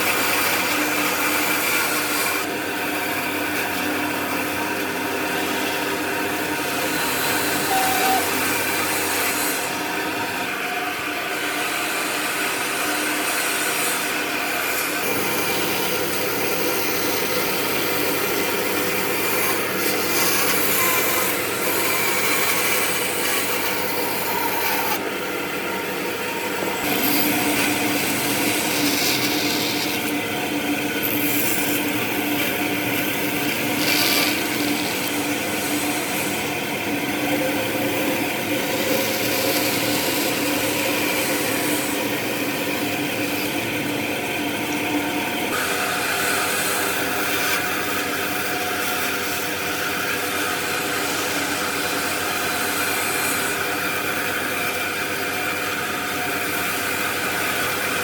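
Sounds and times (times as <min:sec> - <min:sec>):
power tool sanding wood: 0:18.6 - 0:37.0.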